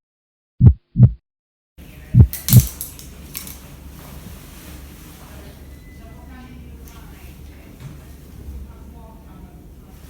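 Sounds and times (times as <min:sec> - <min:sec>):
heartbeat thumps: 0:00.6 - 0:01.2, 0:02.1 - 0:02.7
equipment clicking and clattering: 0:02.3 - 0:03.6.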